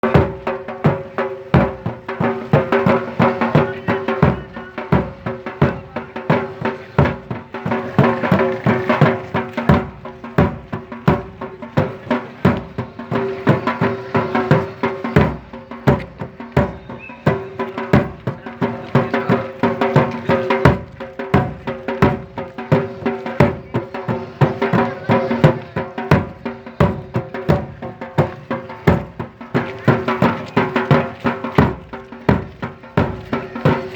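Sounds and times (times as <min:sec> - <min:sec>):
drums beating fast rhythm: 0:00.0 - 0:33.9.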